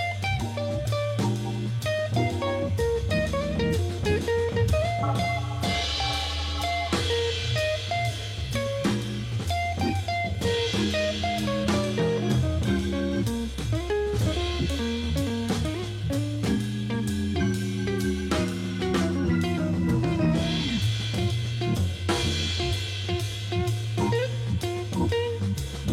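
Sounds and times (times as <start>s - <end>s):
drum-kit beat: 0.0s - 25.9s
guitar tune: 0.0s - 25.9s.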